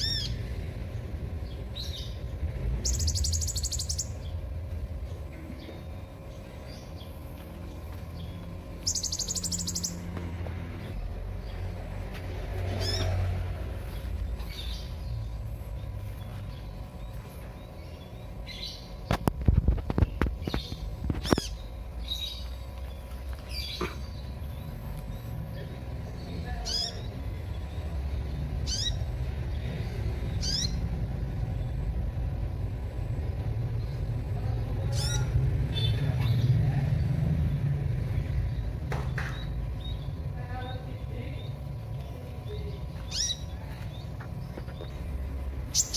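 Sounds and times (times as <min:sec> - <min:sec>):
bird chirping high and sharp: 0:02.8 - 0:04.4, 0:08.8 - 0:10.1, 0:28.6 - 0:29.1, 0:45.7 - 0:45.9.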